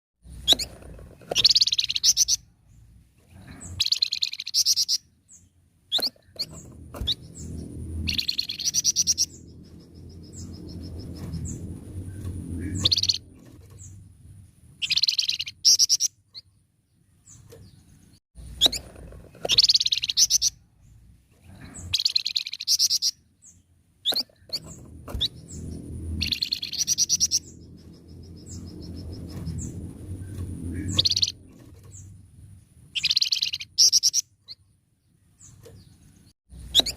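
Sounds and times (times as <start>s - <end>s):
low rumbling background noise: 0.2s - 36.9s
songbird trilled twittering: 1.3s - 2.4s, 3.7s - 11.7s, 12.6s - 14.0s, 14.8s - 16.5s, 19.4s - 20.6s, 21.8s - 32.2s, 32.9s - 34.6s.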